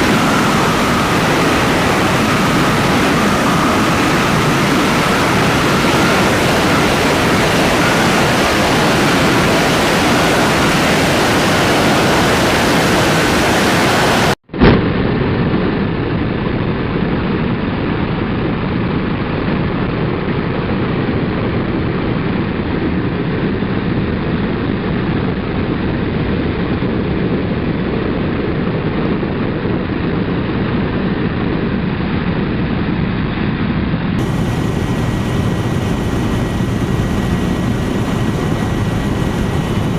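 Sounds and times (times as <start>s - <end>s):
faint high whine: 0.0s - 14.7s, 34.2s - 39.9s
helicopter running: 0.0s - 15.4s, 34.2s - 39.9s.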